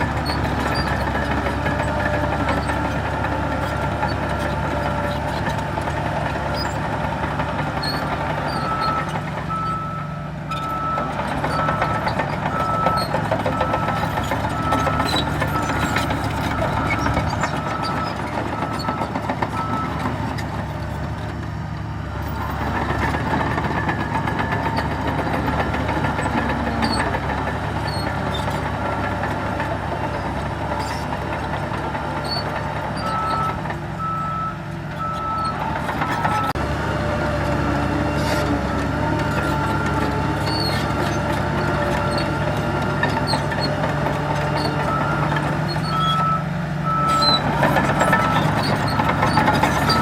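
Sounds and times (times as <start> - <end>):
diesel machinery running: 0.0 - 50.0
reversing alarm beeping: 8.6 - 20.0, 33.0 - 36.5, 44.8 - 47.4.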